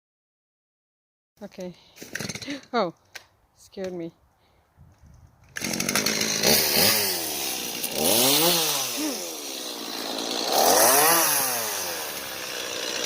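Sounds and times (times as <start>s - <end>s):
chainsaw engine revving: 2.0s - 2.7s, 5.5s - 13.0s.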